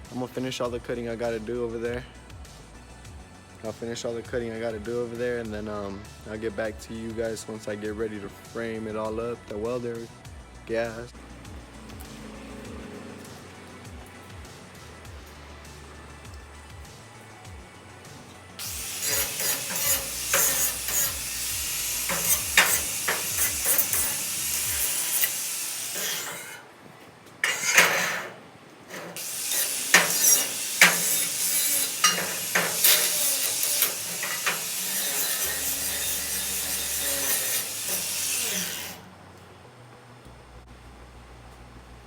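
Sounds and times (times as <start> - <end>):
welder crackling sizzle with pops: 18.6 - 39.0.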